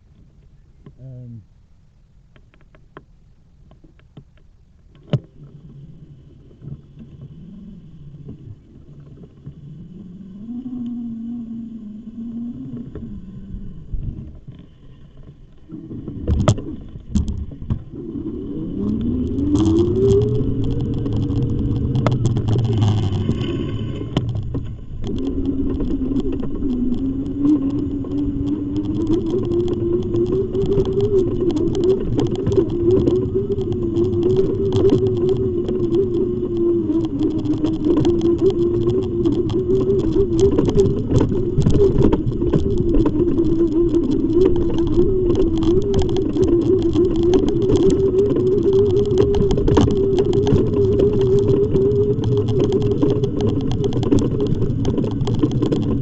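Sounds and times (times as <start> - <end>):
rattling and clicks: 14.1 - 56.0.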